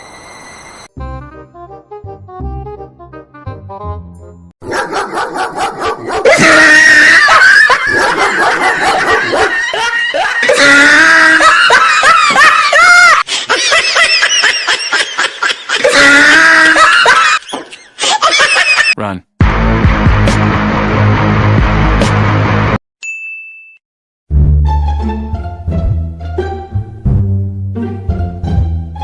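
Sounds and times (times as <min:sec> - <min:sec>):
dog sounds: 0:04.7 - 0:06.4
people laughing and shrieking: 0:06.2 - 0:19.0.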